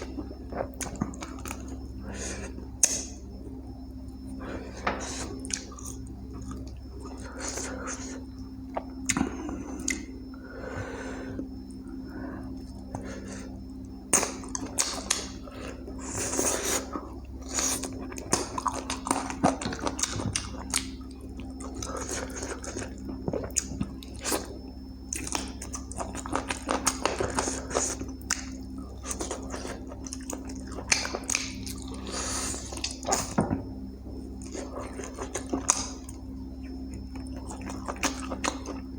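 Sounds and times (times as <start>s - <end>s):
steady low hum: 0.0s - 38.9s
wet chewing and lip smacks: 25.1s - 32.0s.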